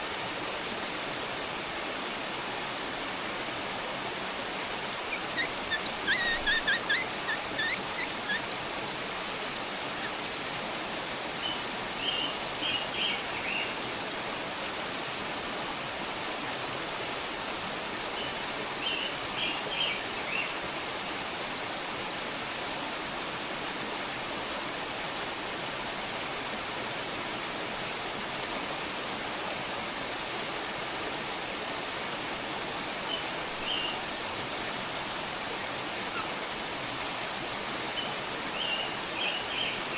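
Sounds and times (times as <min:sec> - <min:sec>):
small birds chirping: 0:04.8 - 0:15.0, 0:16.4 - 0:25.0, 0:33.1 - 0:35.4, 0:36.0 - 0:39.9.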